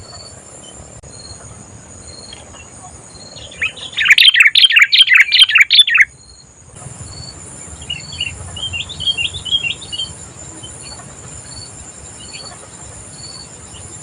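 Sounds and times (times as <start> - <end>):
soft bird chirps: 0.0 - 14.0
bulbul warbling song: 2.2 - 6.1, 7.0 - 14.0.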